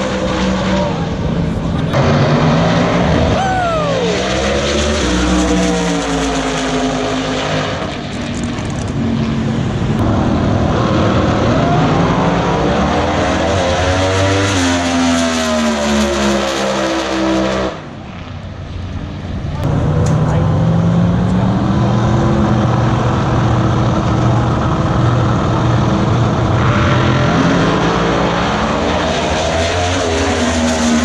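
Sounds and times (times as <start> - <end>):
racing car engines revving: 0.0 - 31.0.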